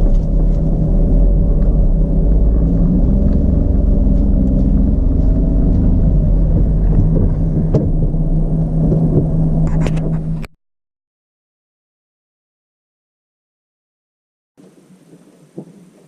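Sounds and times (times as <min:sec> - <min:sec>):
knocks and rattles: 0:00.0 - 0:10.5
truck engine and road rumble: 0:00.0 - 0:10.6.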